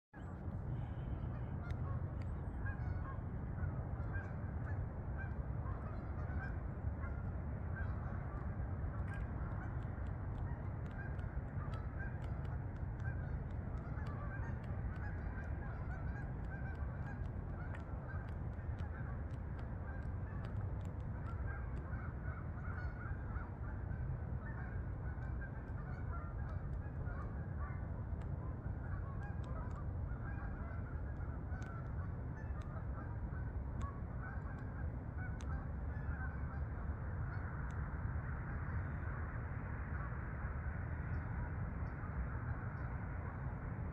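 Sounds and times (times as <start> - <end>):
steady low rumble: 0.2 - 43.9
geese honking: 2.6 - 7.2, 10.4 - 19.2, 21.2 - 27.8, 28.8 - 37.7.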